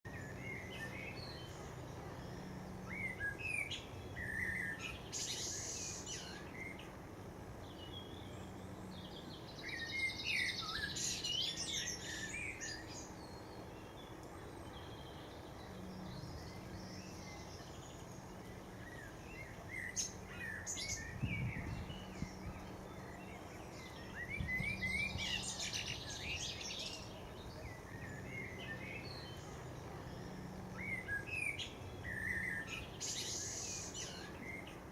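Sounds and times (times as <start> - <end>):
bird trilled song: 7.7 - 34.9
birds chirping and calling: 18.8 - 34.9.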